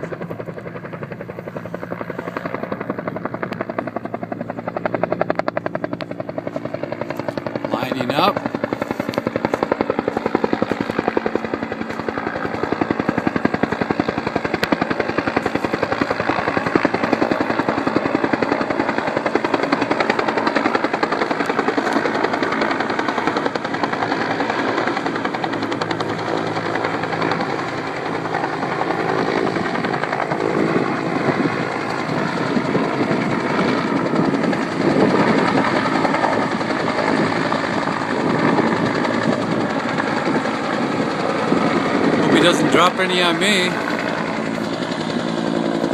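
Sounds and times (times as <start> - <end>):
helicopter rotor beating: 0.0 - 45.9.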